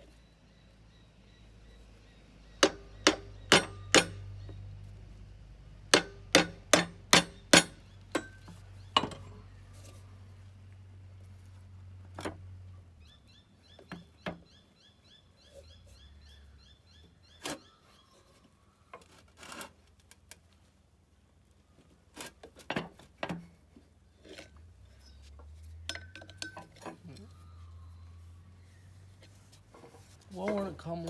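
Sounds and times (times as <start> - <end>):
bird chirping: 0.0 - 4.7, 13.0 - 18.9
hand tools clicking on metal: 2.6 - 4.2, 6.0 - 9.3.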